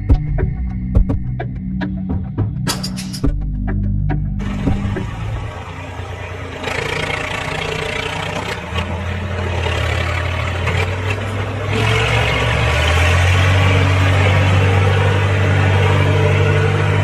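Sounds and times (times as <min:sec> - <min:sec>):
engine running steadily: 0:03.2 - 0:17.0.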